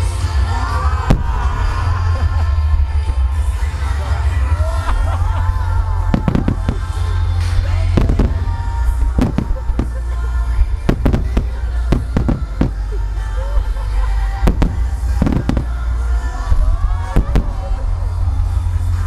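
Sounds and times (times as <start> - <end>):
low rumble: 0.0 - 19.0
music: 0.0 - 19.0
fireworks bangs: 1.1 - 1.7, 6.1 - 16.2, 17.1 - 17.7.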